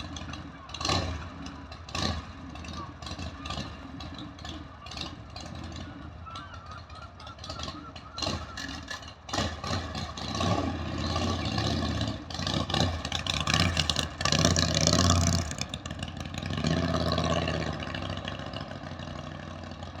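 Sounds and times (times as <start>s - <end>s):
motorbike engine revving: 8.2s - 19.8s.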